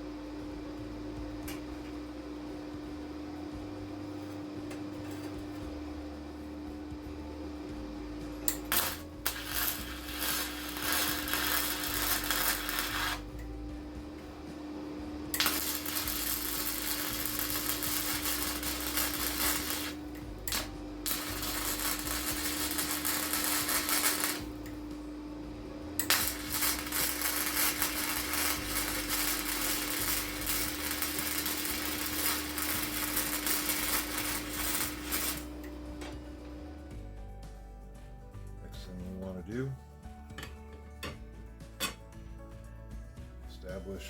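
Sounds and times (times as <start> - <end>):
steel grinding on grinder: 8.5 - 13.3, 15.4 - 24.5, 26.0 - 35.5
grinder motor hum: 8.5 - 36.7.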